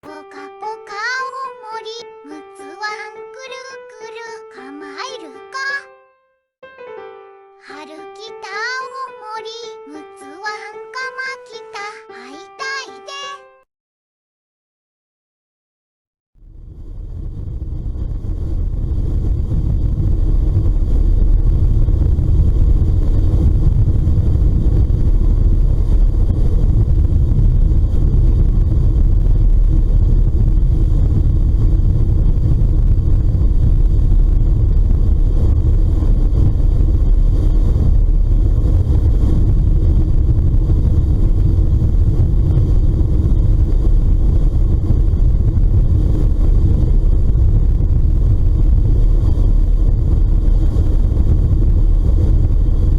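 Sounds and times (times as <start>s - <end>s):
ship engine drone: 16.4s - 52.9s.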